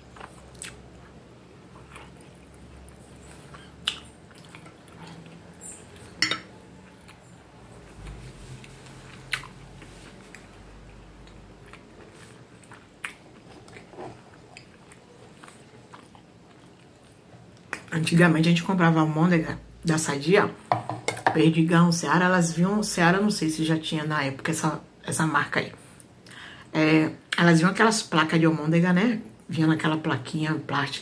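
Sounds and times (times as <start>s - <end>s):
person chewing: 0.0s - 17.9s.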